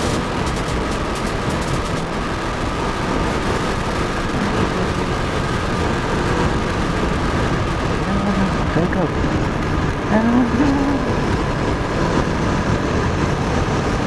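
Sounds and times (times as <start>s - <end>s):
motorcycle engine running: 0.0s - 14.0s
wind noise on microphone: 0.0s - 14.0s.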